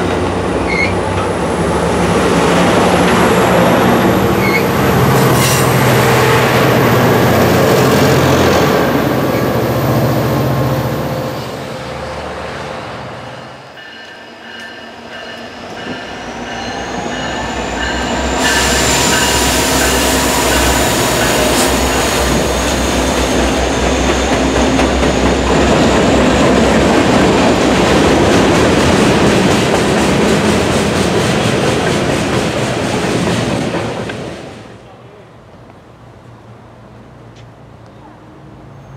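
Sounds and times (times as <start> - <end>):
high wavering wheel squeal: 0.6 - 1.0, 4.3 - 5.7.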